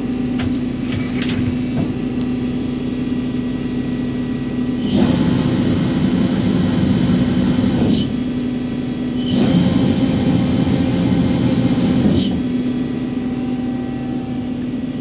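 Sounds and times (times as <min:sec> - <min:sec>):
high whine with rushing noise: 0:00.0 - 0:15.0.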